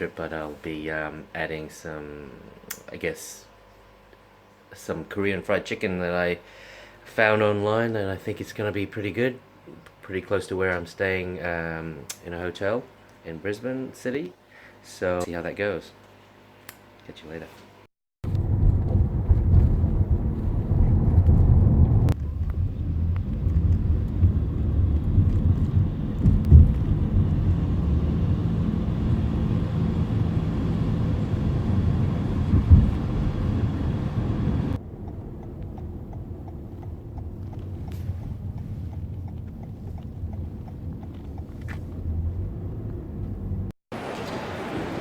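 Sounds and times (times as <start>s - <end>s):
vehicle cabin rumble: 18.2s - 43.7s.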